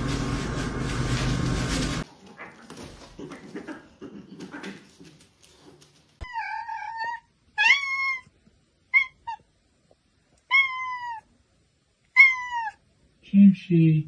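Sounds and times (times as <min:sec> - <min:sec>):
cat meowing: 0:06.2 - 0:09.5, 0:10.4 - 0:11.3, 0:12.1 - 0:12.8.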